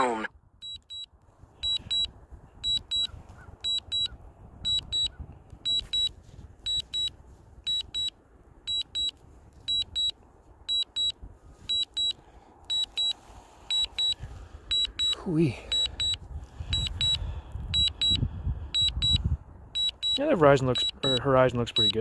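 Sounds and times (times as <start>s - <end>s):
remote controller beeping: 0.6s - 4.1s, 4.7s - 5.1s, 5.7s - 6.1s, 6.7s - 7.1s, 7.7s - 8.1s, 8.7s - 16.2s, 16.8s - 17.2s, 17.8s - 18.2s, 18.8s - 19.2s, 19.8s - 22.0s.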